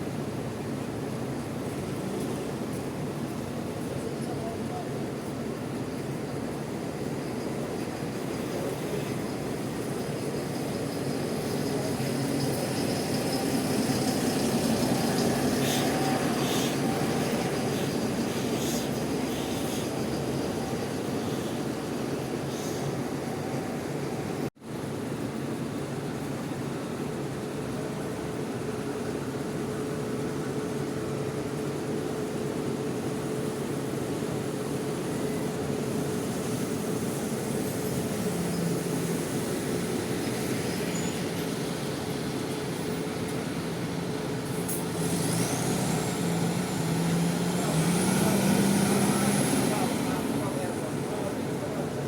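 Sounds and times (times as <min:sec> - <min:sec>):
bus engines running: 0:00.0 - 0:52.0
bus engine revving: 0:06.6 - 0:24.5, 0:35.8 - 0:52.0.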